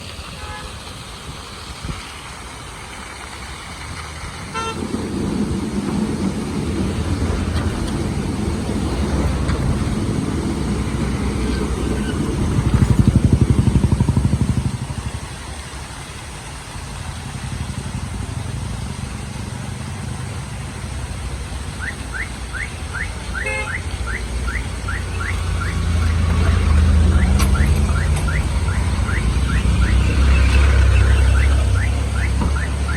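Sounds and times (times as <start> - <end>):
car horn toot: 0.4 - 0.8, 4.5 - 4.9, 21.8 - 26.2, 27.0 - 32.9
vehicle engine passing: 3.6 - 15.8, 16.4 - 32.9.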